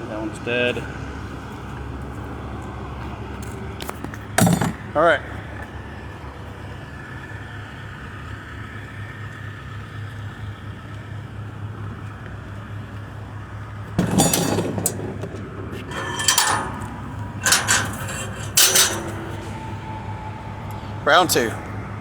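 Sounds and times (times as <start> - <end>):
loud clattering knocks: 14.0 - 19.8
steady low hum: 14.0 - 22.0.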